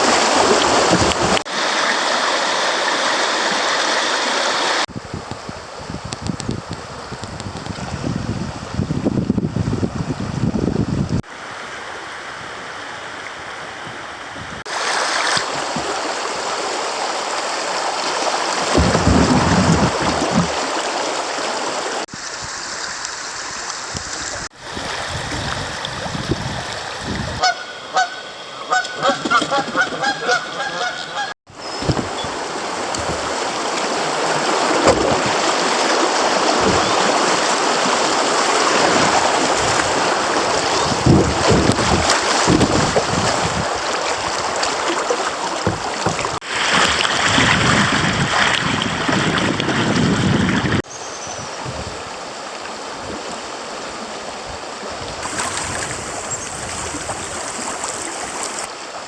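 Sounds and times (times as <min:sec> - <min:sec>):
rushing creek water: 0:00.0 - 0:59.0
wind noise: 0:04.9 - 0:11.3, 0:13.6 - 0:14.7, 0:18.6 - 0:20.7, 0:22.1 - 0:27.6, 0:31.5 - 0:44.6, 0:45.6 - 0:52.2, 0:54.4 - 0:58.7
bird calling loudly: 0:27.3 - 0:32.4.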